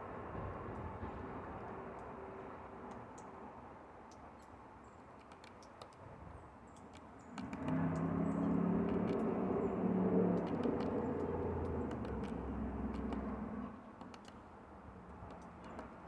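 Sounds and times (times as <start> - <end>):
sharp ticks: 4.0 - 16.0
engine-like hum: 7.0 - 16.0.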